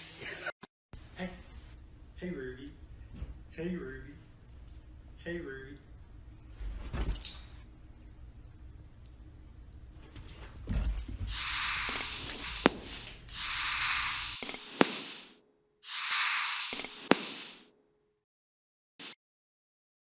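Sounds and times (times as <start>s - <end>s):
hissing whooshes: 11.3s - 17.7s
thin high ringing tone: 11.3s - 18.2s.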